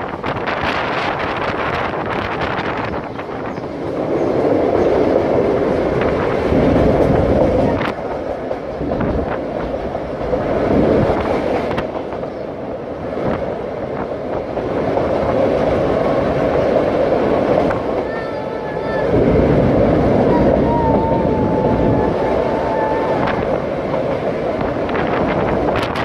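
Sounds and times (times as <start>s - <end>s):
train wheels rumbling on rails: 0.0s - 26.0s
wind on microphone: 0.0s - 26.0s.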